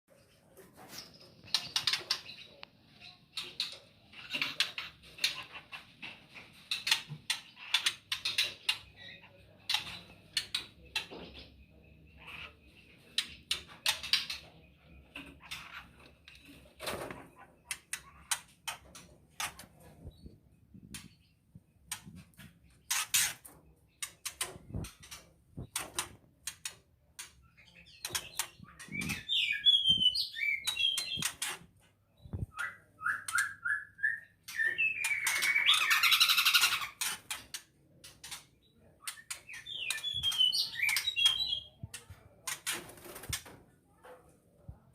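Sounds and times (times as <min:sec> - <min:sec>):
warbled birdsong: 0:00.5 - 0:43.2
bird chirps: 0:27.4 - 0:31.4, 0:32.2 - 0:37.0, 0:38.7 - 0:41.8.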